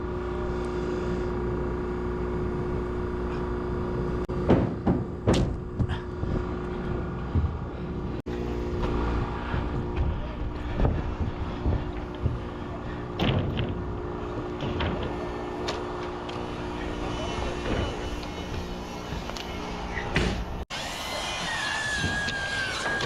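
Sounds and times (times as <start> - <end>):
motor humming: 0.0 - 23.0
sharp knocks: 4.4 - 6.0.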